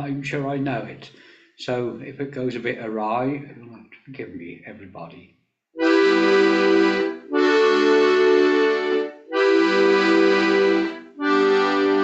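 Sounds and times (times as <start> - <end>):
accordion playing held chords: 5.8 - 12.0.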